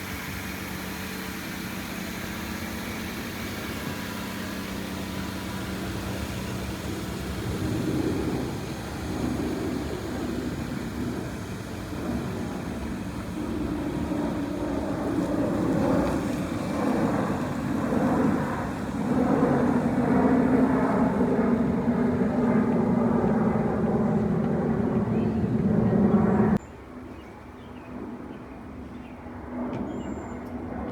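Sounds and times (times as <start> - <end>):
jet engine roar: 0.0 - 30.9.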